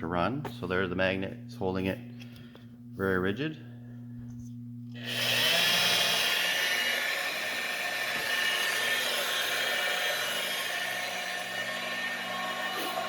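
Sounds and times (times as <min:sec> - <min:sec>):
low electromagnet hum: 0:00.0 - 0:13.0
electric drill motor whine: 0:04.4 - 0:13.0.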